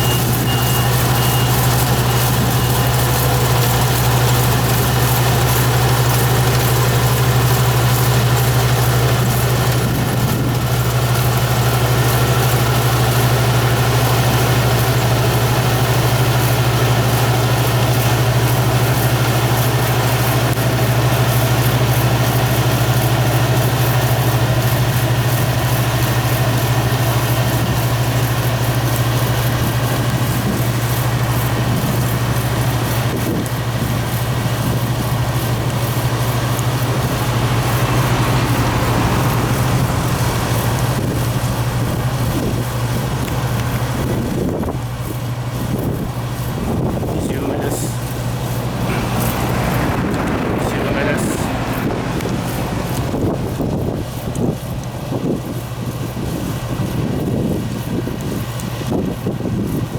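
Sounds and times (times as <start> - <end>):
warning beeper beeping: 0.0 - 3.1
machine engine running: 0.0 - 59.9.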